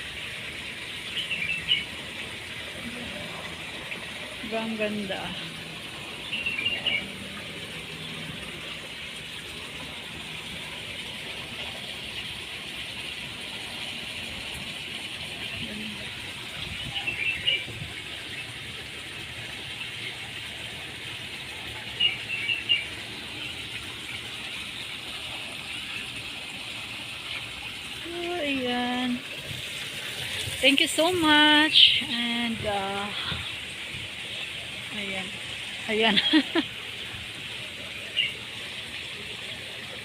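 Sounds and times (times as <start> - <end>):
small birds chirping: 0.8 - 2.0, 6.1 - 7.2, 38.0 - 38.4.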